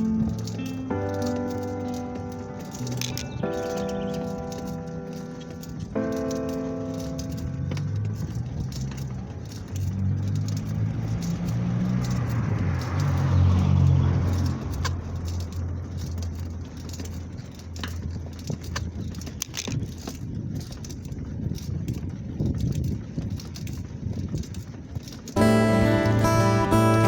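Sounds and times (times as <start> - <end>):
vehicle engine passing: 0.0 - 18.5, 25.3 - 27.0
light clicks and rattles: 0.0 - 27.0.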